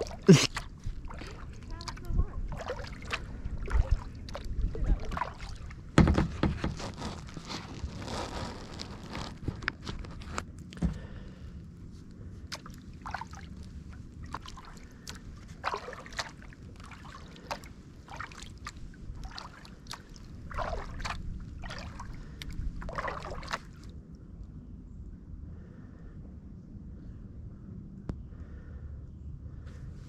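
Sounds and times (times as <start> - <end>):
paddle splashing through water: 0.0 - 10.4, 12.4 - 23.9.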